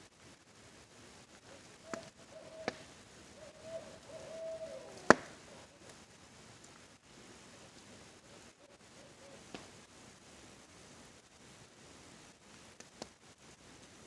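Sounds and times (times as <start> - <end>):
campfire crackling and popping: 0.0 - 14.0
rain hiss: 0.0 - 14.0
owl hooting: 1.4 - 6.0, 7.5 - 9.6.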